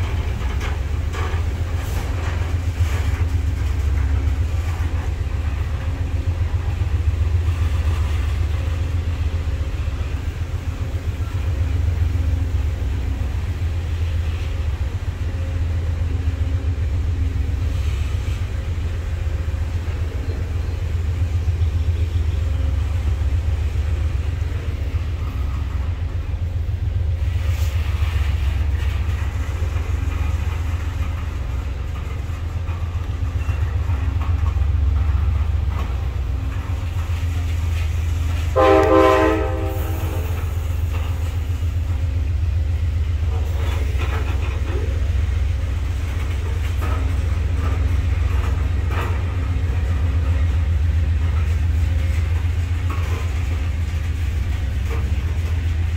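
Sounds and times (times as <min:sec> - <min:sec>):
freight train wheels rumbling: 0:00.0 - 0:55.9
train horn: 0:38.5 - 0:40.6.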